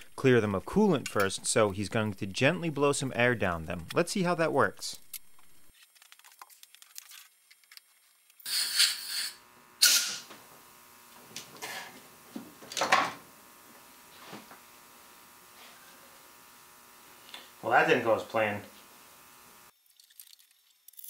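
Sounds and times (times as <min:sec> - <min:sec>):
air blow gun hissing: 0:08.5 - 0:19.7.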